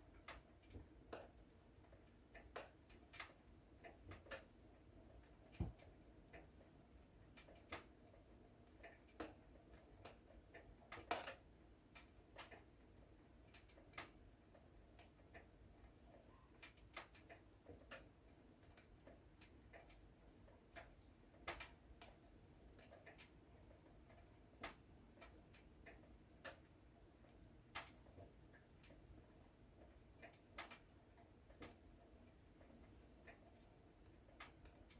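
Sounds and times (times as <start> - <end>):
faint steady hiss: 0.0 - 34.9.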